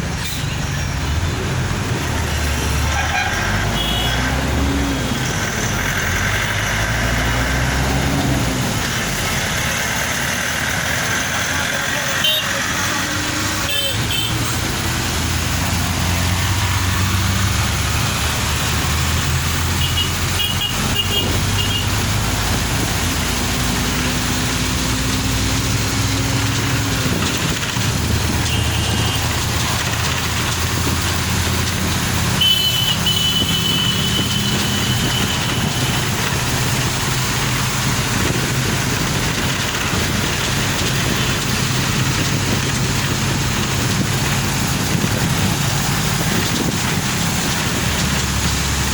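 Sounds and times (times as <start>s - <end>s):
car engine hum and road noise: 1.0s - 48.9s
vehicle horns beeping: 2.9s - 4.4s, 12.1s - 14.6s, 19.7s - 22.0s, 28.4s - 29.4s, 32.3s - 36.2s.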